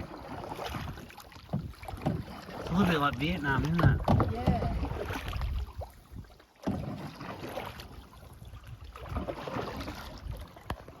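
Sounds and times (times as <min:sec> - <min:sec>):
paddle splashing water: 0:00.0 - 0:11.0
wind rumble on microphone: 0:03.7 - 0:06.4, 0:08.2 - 0:10.9.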